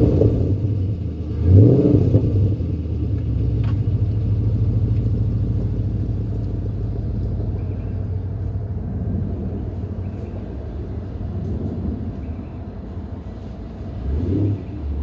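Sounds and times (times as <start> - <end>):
engine idle rumble: 0.0 - 15.0.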